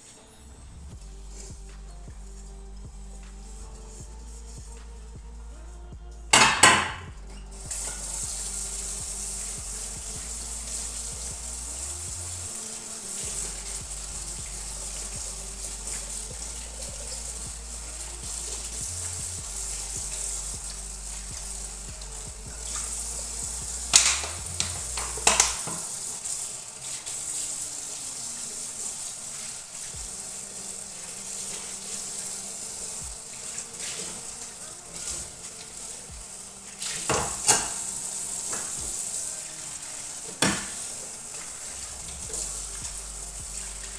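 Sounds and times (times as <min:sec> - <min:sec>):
quiet background music: 0:00.0 - 0:43.9
steady high hiss: 0:00.0 - 0:43.9
dishes clattering: 0:06.4 - 0:07.1.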